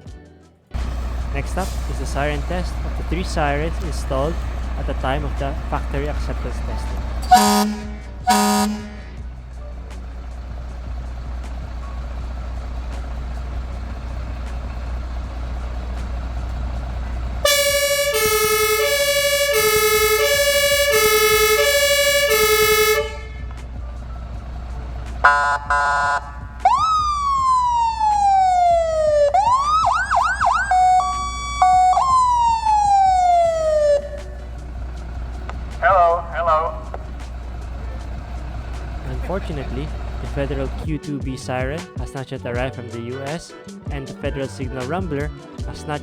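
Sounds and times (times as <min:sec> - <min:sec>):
electronic siren sweeps and yelp: 0:06.7 - 0:09.1, 0:17.4 - 0:23.5, 0:25.2 - 0:34.5
two-tone hi-lo siren: 0:07.2 - 0:09.1, 0:17.4 - 0:23.5, 0:25.2 - 0:34.4.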